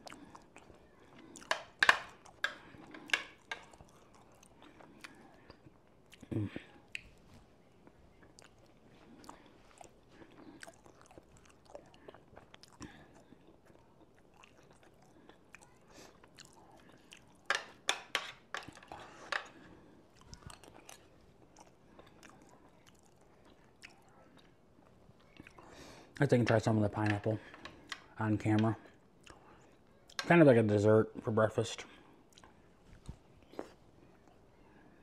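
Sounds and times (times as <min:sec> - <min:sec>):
person chewing and biting food: 0:00.0 - 0:06.3, 0:08.2 - 0:17.5.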